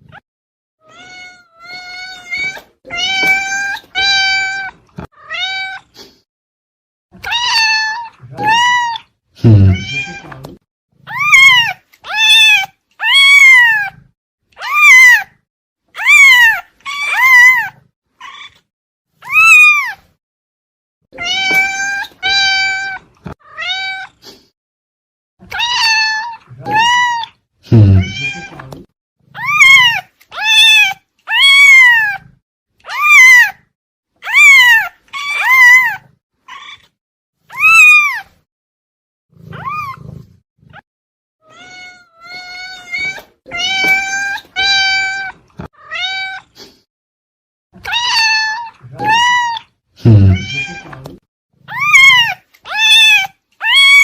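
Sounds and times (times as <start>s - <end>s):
cat meowing: 0.8s - 6.0s, 7.2s - 10.4s, 11.1s - 14.0s, 14.6s - 15.4s, 16.0s - 18.6s, 19.2s - 20.0s, 21.2s - 24.2s, 25.5s - 28.7s, 29.4s - 32.3s, 32.9s - 33.6s, 34.2s - 36.9s, 37.5s - 38.4s, 39.5s - 40.2s, 41.4s - 46.6s, 47.8s - 51.0s, 51.7s - 54.0s.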